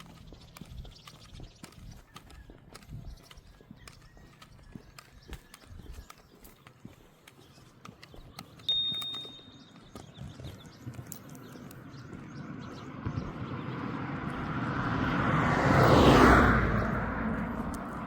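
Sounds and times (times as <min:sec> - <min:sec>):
vehicle passing by: 0:00.0 - 0:04.4, 0:10.7 - 0:18.0.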